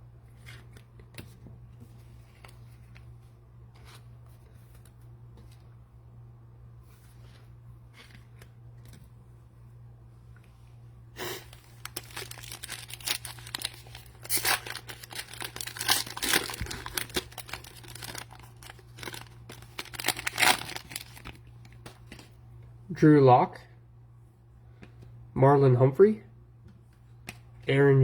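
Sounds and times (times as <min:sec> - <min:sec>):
cellophane wrapper crinkling: 0:11.4 - 0:22.4.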